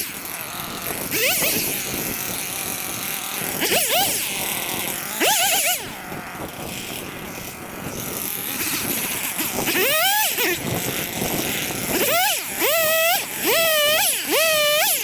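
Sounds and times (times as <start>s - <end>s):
chainsaw revving: 0.0s - 15.0s.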